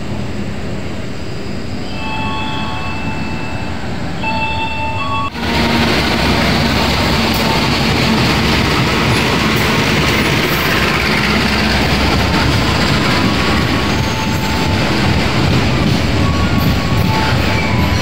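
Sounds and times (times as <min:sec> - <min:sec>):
train passing: 0:00.0 - 0:18.0
steel wheels rattling on rails: 0:05.3 - 0:18.0.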